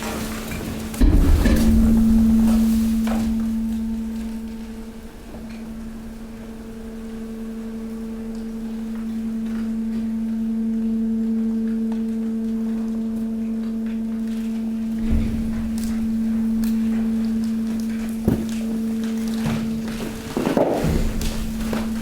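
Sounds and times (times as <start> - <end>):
hydraulic pump humming: 0.0 - 13.5, 14.2 - 22.0
low thump: 1.0 - 7.2.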